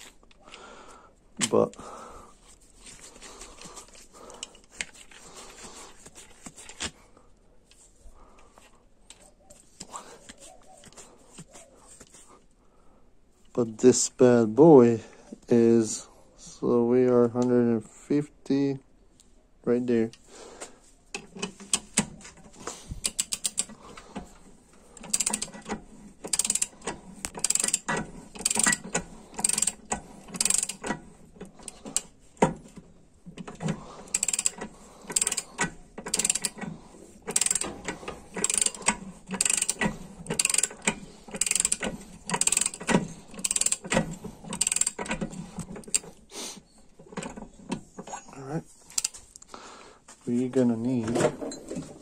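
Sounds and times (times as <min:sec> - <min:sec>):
ratchet wrench clicking: 0:23.0 - 0:23.8, 0:25.0 - 0:31.0, 0:34.1 - 0:36.6, 0:37.3 - 0:46.0, 0:48.9 - 0:49.2.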